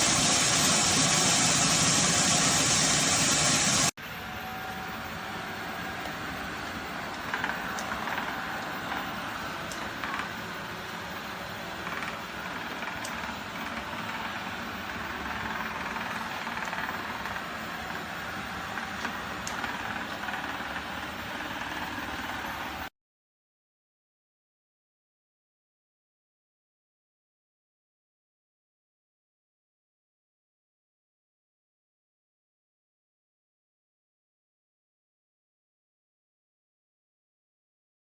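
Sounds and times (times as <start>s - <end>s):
robot vacuum running: 0.0s - 22.9s.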